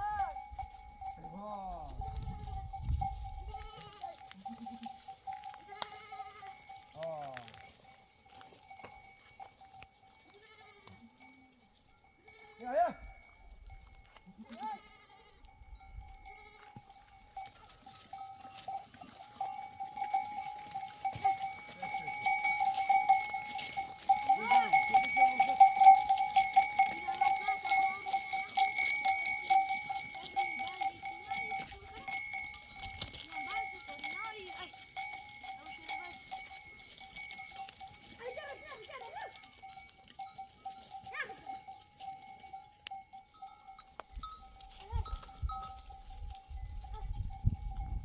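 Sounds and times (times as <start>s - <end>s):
sheep bells clanking: 0.0s - 48.0s
sheep bleating: 3.4s - 5.0s, 5.6s - 6.6s, 14.3s - 15.5s, 16.2s - 16.9s.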